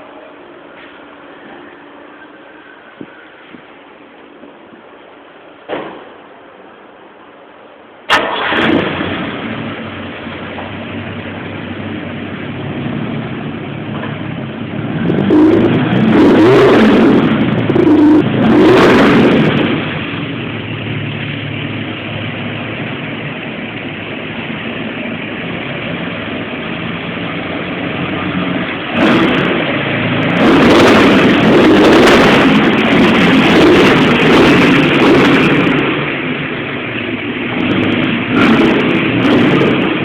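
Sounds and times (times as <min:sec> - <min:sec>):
car engine idling: 0:00.0 - 0:40.0
car engine revving: 0:08.1 - 0:40.0.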